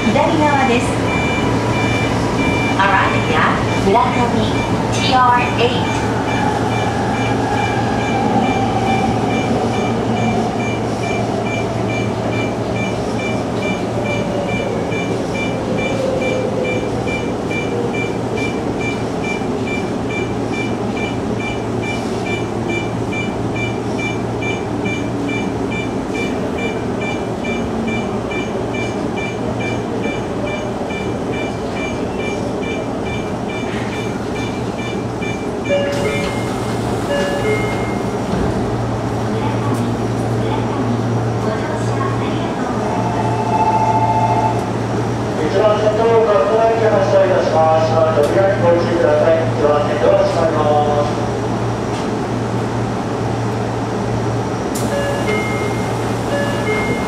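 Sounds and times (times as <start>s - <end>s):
high beeps: 1.0s - 4.8s, 5.7s - 36.5s, 37.1s - 38.1s, 54.9s - 57.0s.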